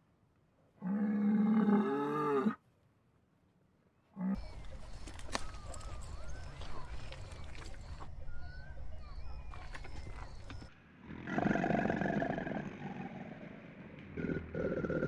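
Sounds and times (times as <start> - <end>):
faint bird chirps: 4.4 - 10.7
large animal growling: 11.0 - 15.0.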